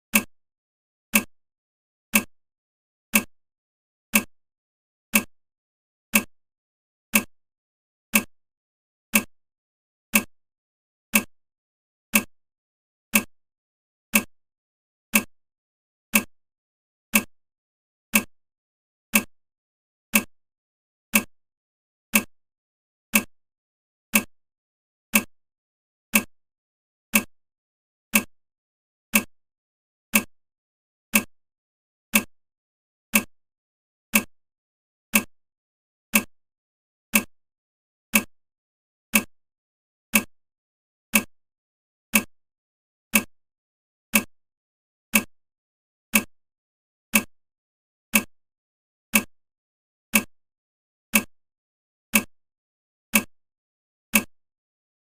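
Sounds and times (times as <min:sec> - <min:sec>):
timer ticking: 0:00.1 - 0:00.3, 0:01.1 - 0:01.3, 0:02.1 - 0:02.3, 0:03.1 - 0:03.3, 0:04.1 - 0:04.3, 0:05.1 - 0:05.3, 0:06.1 - 0:06.3, 0:07.1 - 0:07.3, 0:08.1 - 0:08.3, 0:09.1 - 0:09.3, 0:10.1 - 0:10.3, 0:11.1 - 0:11.3, 0:12.1 - 0:12.3, 0:13.1 - 0:13.3, 0:14.1 - 0:14.3, 0:15.1 - 0:15.3, 0:16.1 - 0:16.3, 0:17.1 - 0:17.3, 0:18.1 - 0:18.3, 0:19.1 - 0:19.3, 0:20.1 - 0:20.3, 0:21.1 - 0:21.3, 0:22.1 - 0:22.3, 0:23.1 - 0:23.3, 0:24.1 - 0:24.3, 0:25.1 - 0:25.3, 0:26.1 - 0:26.3, 0:27.1 - 0:27.3, 0:28.1 - 0:28.3, 0:29.1 - 0:29.3, 0:30.1 - 0:30.3, 0:31.1 - 0:31.3, 0:32.1 - 0:32.3, 0:33.1 - 0:33.3, 0:34.1 - 0:34.3, 0:35.1 - 0:35.3, 0:36.1 - 0:36.3, 0:37.1 - 0:37.3, 0:38.1 - 0:38.3, 0:39.1 - 0:39.3, 0:40.1 - 0:40.3, 0:41.1 - 0:41.3, 0:42.1 - 0:42.3, 0:43.1 - 0:43.3, 0:44.1 - 0:44.3, 0:45.1 - 0:45.3, 0:46.1 - 0:46.3, 0:47.1 - 0:47.3, 0:48.1 - 0:48.3, 0:49.1 - 0:49.3, 0:50.1 - 0:50.3, 0:51.1 - 0:51.3, 0:52.1 - 0:52.3, 0:53.1 - 0:53.3, 0:54.1 - 0:54.4.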